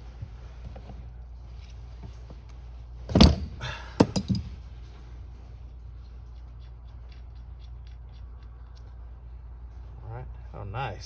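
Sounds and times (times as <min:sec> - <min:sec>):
sharp knocks: 0:03.1 - 0:04.5.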